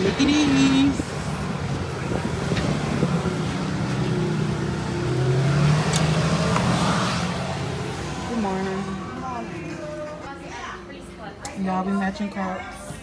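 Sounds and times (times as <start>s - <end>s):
car engine from inside cabin: 0.0s - 10.2s.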